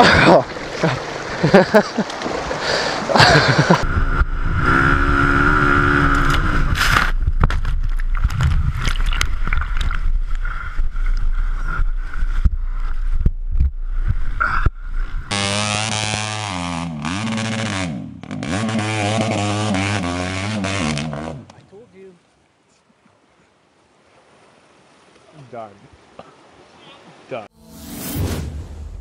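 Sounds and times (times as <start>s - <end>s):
splashes: 0.0s - 3.9s, 6.7s - 10.4s
water sloshing and gurgling: 0.0s - 3.9s, 6.1s - 15.3s
dirt bike engine running: 3.8s - 7.3s, 13.3s - 21.3s.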